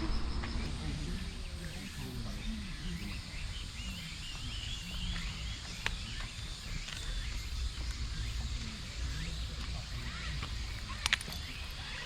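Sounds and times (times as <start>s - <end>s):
outdoor background rumble: 0.0s - 3.9s.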